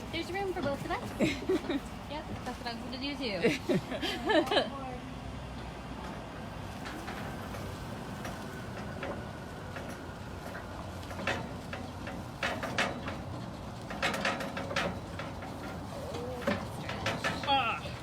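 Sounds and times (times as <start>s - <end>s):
sharp metallic clicks and rattles: 6.7s - 18.0s.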